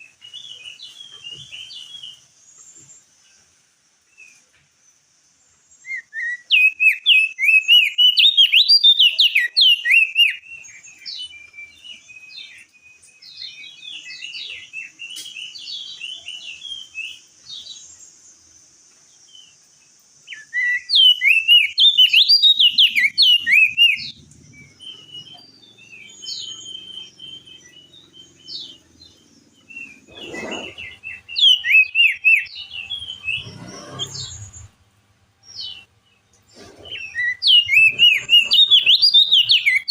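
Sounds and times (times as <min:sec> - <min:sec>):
bird chirping: 0:00.0 - 0:39.9
bird twittering song: 0:00.0 - 0:39.9.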